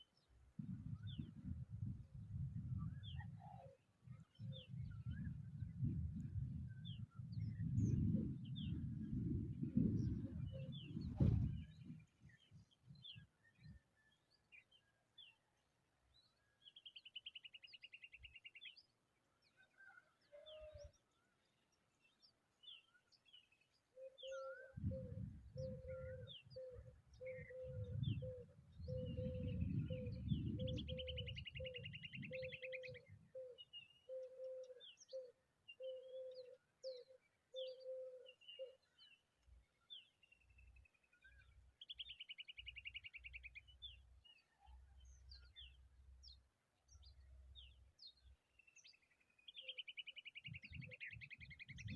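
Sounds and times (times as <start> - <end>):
birds chirping and whistling: 24.0 - 38.8.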